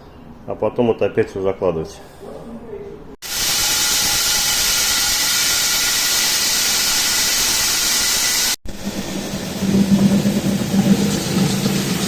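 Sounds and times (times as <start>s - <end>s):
power tool hissing into masonry: 3.2s - 9.8s.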